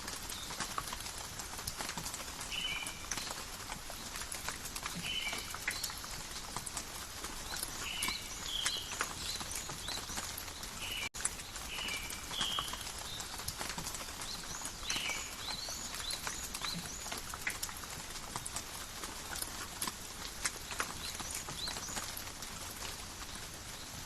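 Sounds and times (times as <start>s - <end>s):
drops ticking on leaves: 0.0s - 24.0s
rain in a forest: 0.0s - 24.0s
birds chirping: 7.4s - 13.4s, 14.0s - 17.4s.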